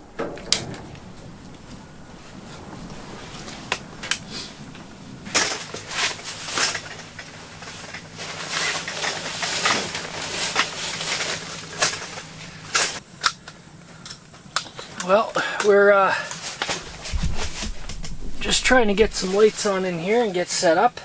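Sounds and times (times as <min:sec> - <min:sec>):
sharp clicks and knocks: 0:00.0 - 0:01.8, 0:16.6 - 0:19.6
rustling: 0:00.0 - 0:13.0, 0:16.2 - 0:20.3
faint steady low hum: 0:00.0 - 0:21.0.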